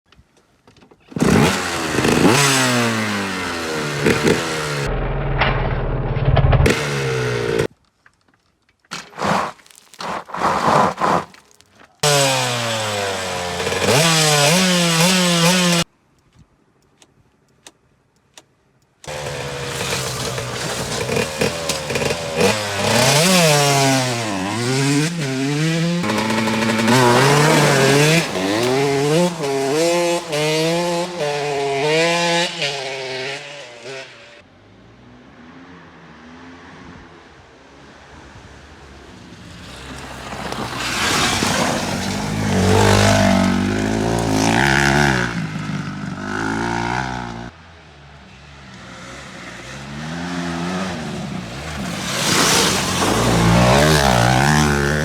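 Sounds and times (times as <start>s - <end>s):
dirt bike engines revving: 1.1s - 5.5s, 6.1s - 7.7s, 12.0s - 15.8s, 19.1s - 34.4s, 39.6s - 47.5s, 48.2s - 55.0s.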